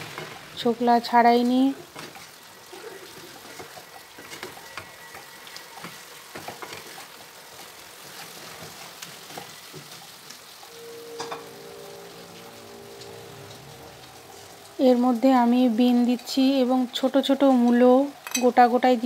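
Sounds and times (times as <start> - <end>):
curry sizzling in oil: 0.0 - 19.0
wooden spatula stirring and scraping: 1.5 - 15.2.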